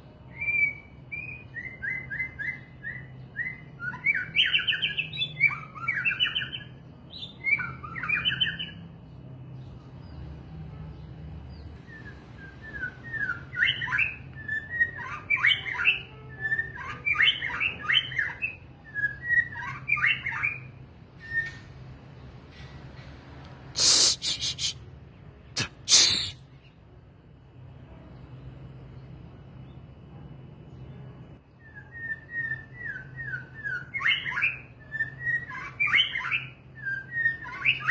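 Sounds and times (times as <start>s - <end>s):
harsh rasping bird calls: 23.8s - 24.9s, 25.6s - 26.8s.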